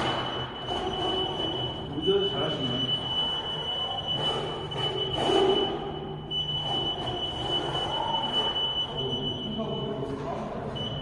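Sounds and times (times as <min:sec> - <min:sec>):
high-pitched warning buzzer: 0:00.0 - 0:10.1.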